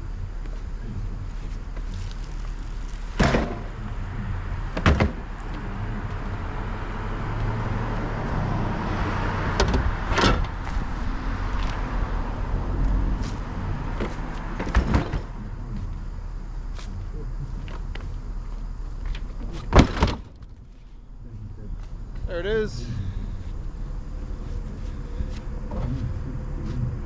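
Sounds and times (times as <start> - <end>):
vehicle low hum: 0.0 - 27.0
sharp knocks and bangs: 3.2 - 3.8, 4.7 - 5.3, 19.7 - 20.4.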